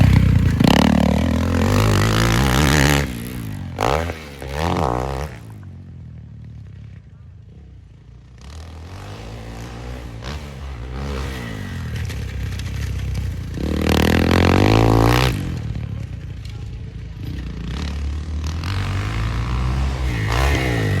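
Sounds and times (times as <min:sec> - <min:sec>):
dirt bike engine revving: 0:00.0 - 0:05.8, 0:08.3 - 0:16.3, 0:17.1 - 0:21.0.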